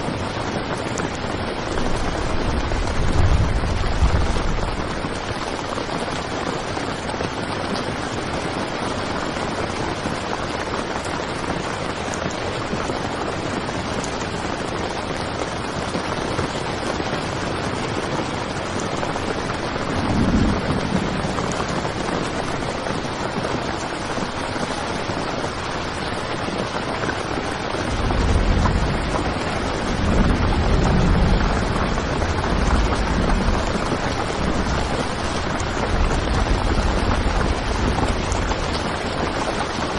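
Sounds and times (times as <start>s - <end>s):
heavy rain on a tent: 0.0s - 39.9s
low rumbles: 1.8s - 5.3s, 27.9s - 39.8s.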